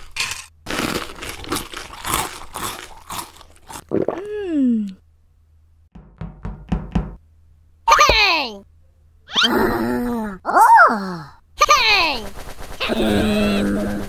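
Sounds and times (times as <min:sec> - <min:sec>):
crunching and chewing: 0:00.0 - 0:04.1.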